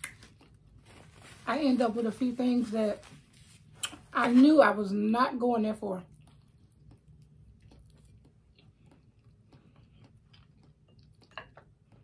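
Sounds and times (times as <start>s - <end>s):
person chewing food: 0.0s - 1.2s, 6.1s - 12.0s.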